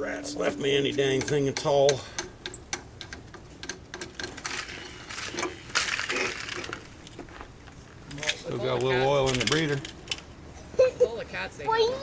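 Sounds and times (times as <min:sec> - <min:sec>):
scraping rustle: 0:04.2 - 0:09.9.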